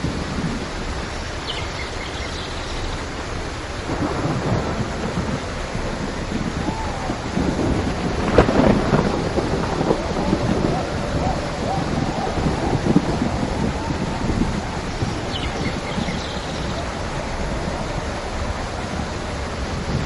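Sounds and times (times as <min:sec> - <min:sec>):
steady rain: 0:00.0 - 0:20.0
rumbling thunder: 0:03.7 - 0:20.0.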